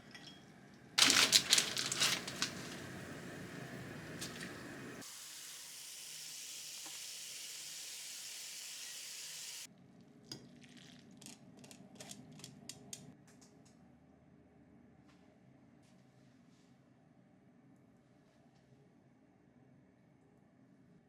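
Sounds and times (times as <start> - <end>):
food sizzling in a frying pan: 1.0 - 9.7.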